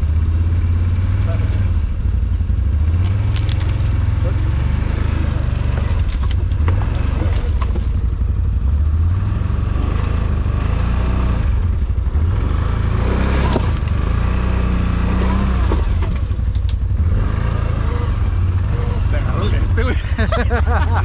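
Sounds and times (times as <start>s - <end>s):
atv engine rumbling: 0.0s - 21.0s.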